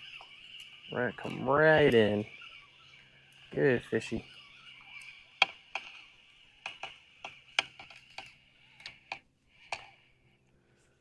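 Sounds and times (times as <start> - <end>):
sharp clicks and taps: 5.0 - 6.0.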